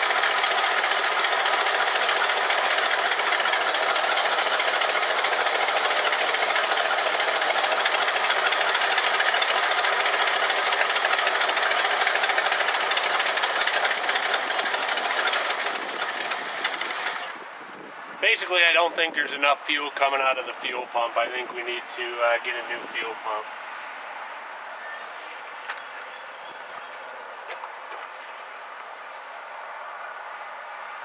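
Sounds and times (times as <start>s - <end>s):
car engine running: 0.0s - 17.4s.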